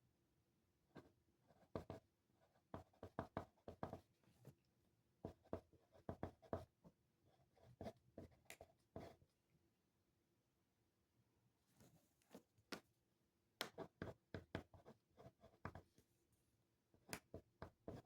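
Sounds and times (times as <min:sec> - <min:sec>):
pen writing on paper: 0:01.5 - 0:04.0, 0:05.3 - 0:06.7, 0:07.3 - 0:09.2, 0:13.7 - 0:15.8.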